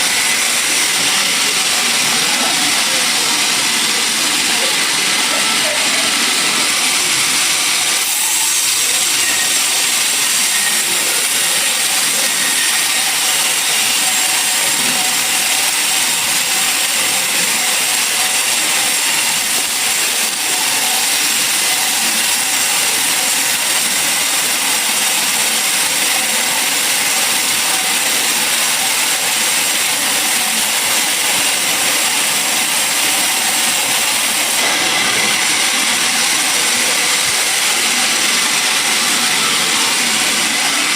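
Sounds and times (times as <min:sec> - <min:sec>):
saw cutting through log: 0:00.0 - 0:40.9.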